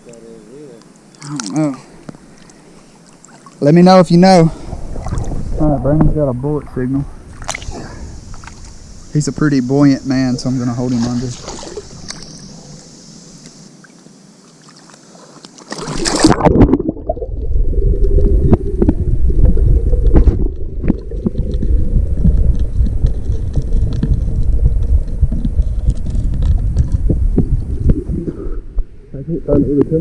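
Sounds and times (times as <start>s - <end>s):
steady low hum: 0.0s - 14.3s
underwater rumbling and gurgling: 4.5s - 9.1s, 16.0s - 29.1s
small clicks underwater: 7.4s - 7.7s, 20.0s - 28.0s
water splash: 10.5s - 12.5s, 14.6s - 24.2s.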